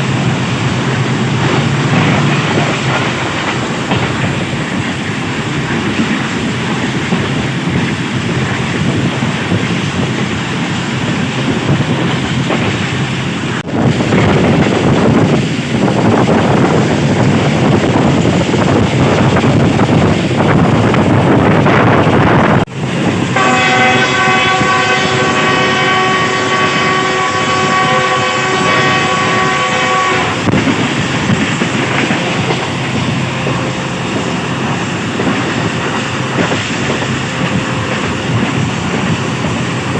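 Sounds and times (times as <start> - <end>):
train rumble and wheel clatter: 0.0 - 39.9
train horn blast: 23.2 - 30.8.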